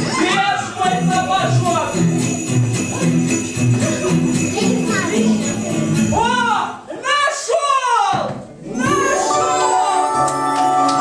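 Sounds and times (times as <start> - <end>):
festive music with bass line: 0.0 - 6.5
jingle bells shaking: 0.7 - 6.4.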